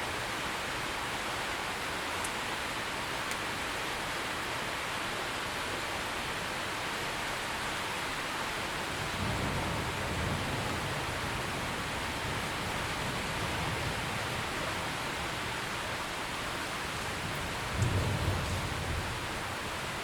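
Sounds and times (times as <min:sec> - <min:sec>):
heavy rain falling: 0:00.1 - 0:20.0
distant thunder rumbling: 0:09.0 - 0:20.0.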